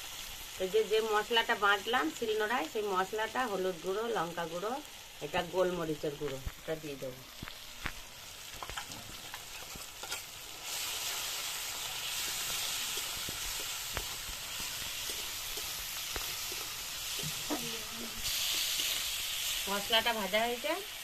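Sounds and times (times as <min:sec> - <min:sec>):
spice paste sizzling in oil: 0:00.0 - 0:21.0.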